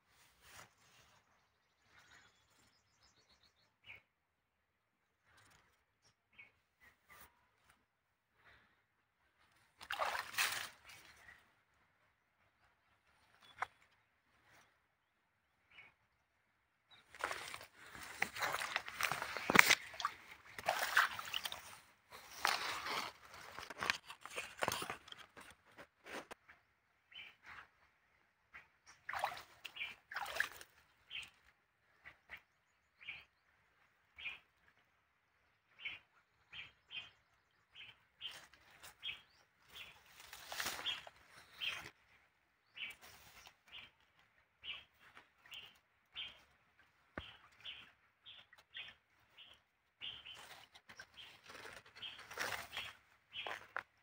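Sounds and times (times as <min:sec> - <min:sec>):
leaves rustling: 0:09.9 - 0:11.2, 0:17.1 - 0:25.5, 0:39.7 - 0:41.9, 0:50.2 - 0:53.8
small birds chirping: 0:26.3 - 0:34.8, 0:35.7 - 0:54.0.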